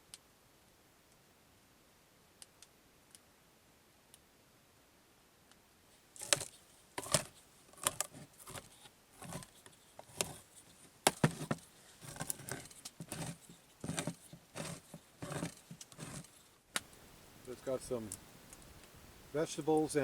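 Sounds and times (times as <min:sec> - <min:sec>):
small objects clicking and rustling: 0:06.2 - 0:16.9.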